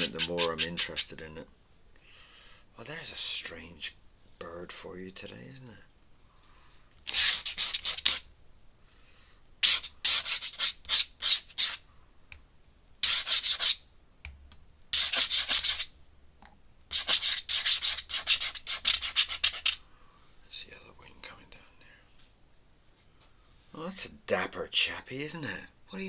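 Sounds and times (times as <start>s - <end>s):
pen scratching on paper: 0.0s - 1.1s, 7.1s - 8.2s, 9.6s - 11.8s, 13.0s - 13.8s, 15.0s - 15.9s, 16.9s - 19.8s.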